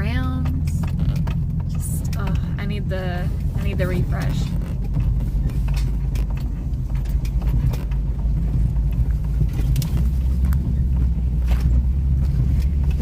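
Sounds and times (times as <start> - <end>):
knocks and rattles: 0.0 - 13.0
truck engine running: 0.0 - 13.0.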